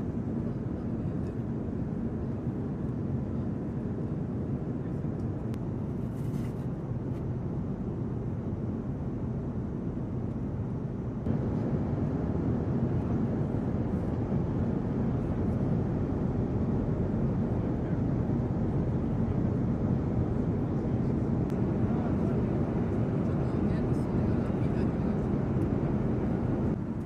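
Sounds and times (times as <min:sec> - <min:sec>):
jet engines running: 0:06.8 - 0:27.0.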